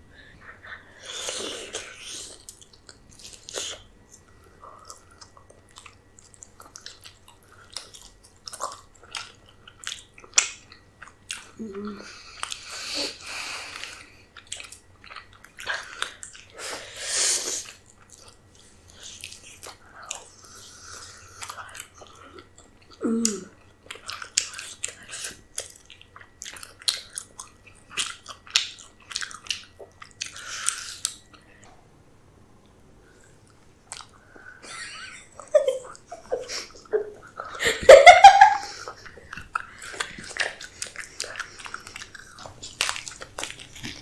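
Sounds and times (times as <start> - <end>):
wet chewing and biting: 23.6 - 31.7, 38.8 - 44.0.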